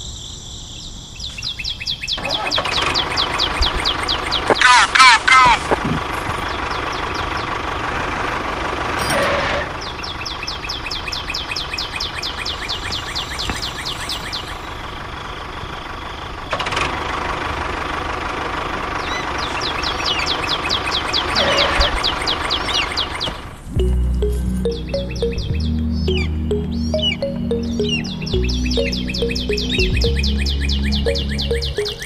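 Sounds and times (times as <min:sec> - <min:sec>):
quick high chirps: 0:23.8 - 0:32.0.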